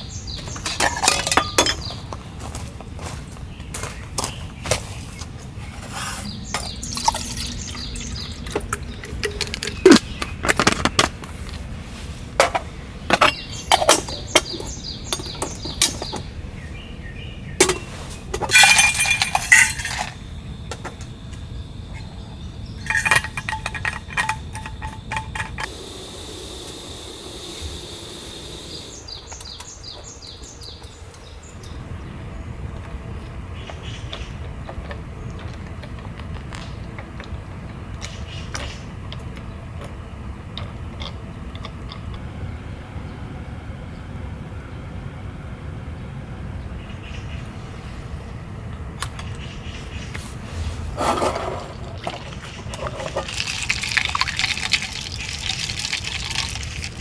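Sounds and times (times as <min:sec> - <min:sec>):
camping cookware clinking and clattering: 0:00.3 - 0:02.3, 0:06.5 - 0:11.3, 0:12.4 - 0:16.3, 0:17.6 - 0:21.0, 0:22.7 - 0:25.7, 0:51.0 - 0:57.0.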